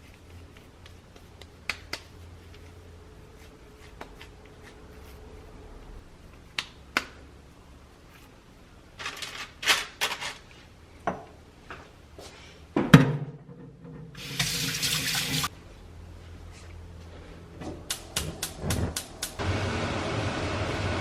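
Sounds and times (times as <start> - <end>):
tap water running into a sink: 14.2 - 15.5.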